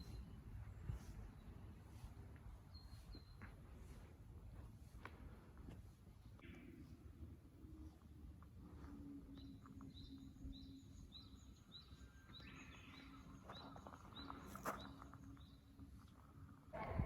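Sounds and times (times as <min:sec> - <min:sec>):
faint background noise: 0:00.0 - 0:17.0
bird chirping: 0:09.2 - 0:15.9.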